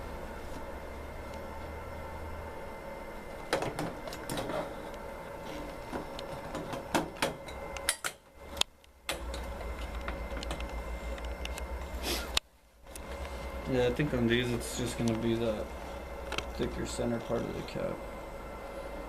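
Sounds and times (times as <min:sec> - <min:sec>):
embroidery machine humming: 0:00.0 - 0:19.0
sharp clicks and knocks: 0:05.9 - 0:11.7.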